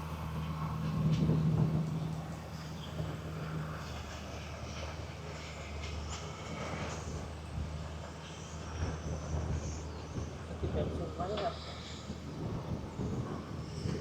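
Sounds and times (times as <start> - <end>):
golf cart motor humming: 0.0 - 4.0.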